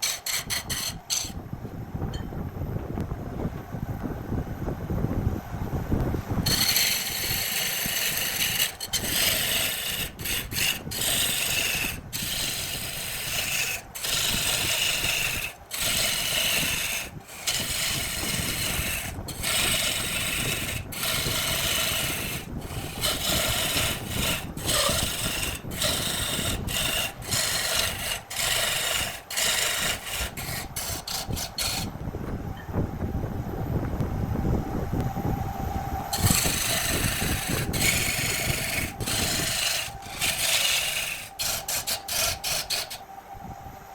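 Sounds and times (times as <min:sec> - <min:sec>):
lathe tool scraping wood: 0:00.0 - 0:01.4, 0:06.4 - 0:32.0, 0:36.1 - 0:43.0.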